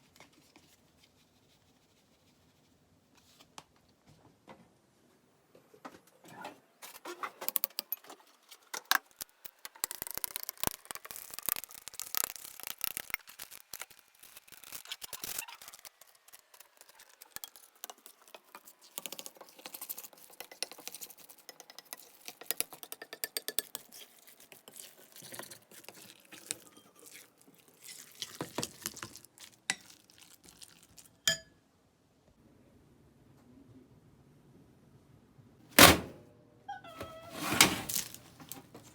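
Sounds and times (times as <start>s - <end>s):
small objects clicking and clinking: 7.5s - 23.9s.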